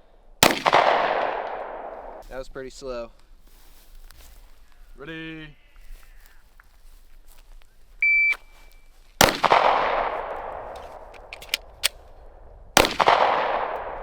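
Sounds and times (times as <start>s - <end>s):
pistol shots echoing: 0.4s - 2.2s, 9.2s - 11.9s, 12.8s - 14.0s
shot timer beep: 8.0s - 8.5s
reload clicks: 9.2s - 12.1s.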